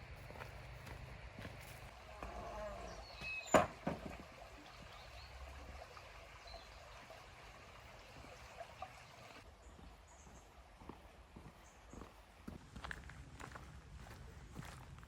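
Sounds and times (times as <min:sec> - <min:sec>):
river water over stones: 0:02.8 - 0:12.4.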